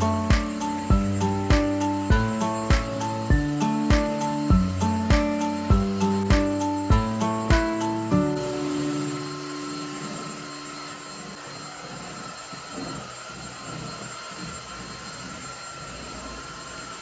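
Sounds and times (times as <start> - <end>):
held music notes: 0.0 - 11.5
appliance motor whine with rushing air: 0.0 - 17.0.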